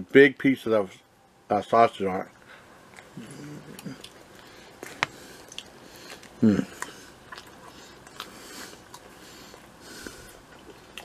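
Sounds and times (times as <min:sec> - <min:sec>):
man chewing food: 0:02.3 - 0:11.0
short vocal sound: 0:03.2 - 0:04.0, 0:06.4 - 0:06.8.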